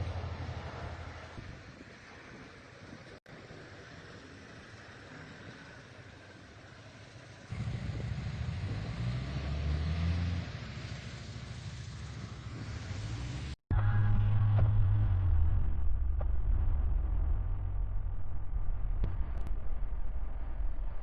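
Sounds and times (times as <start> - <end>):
wind and road noise hiss: 0.0 - 13.6
vehicle rumbling on snowy road: 0.0 - 21.0.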